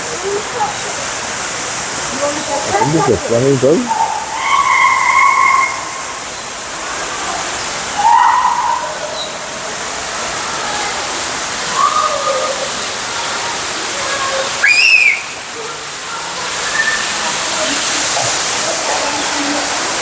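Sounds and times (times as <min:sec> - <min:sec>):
rushing falling water: 0:00.0 - 0:20.0
bird whistled call: 0:14.6 - 0:15.4, 0:16.6 - 0:17.2.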